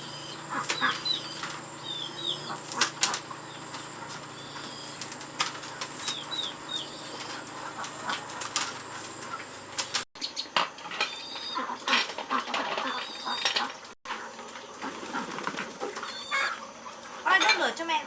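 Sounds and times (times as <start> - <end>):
small birds chirping: 0.0 - 13.8.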